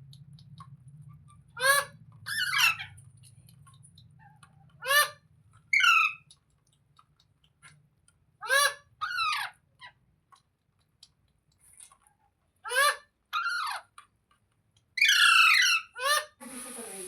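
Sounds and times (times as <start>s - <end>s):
parrot screeching: 1.6s - 3.0s, 4.8s - 6.2s, 8.4s - 9.9s, 12.7s - 13.9s, 15.0s - 16.4s.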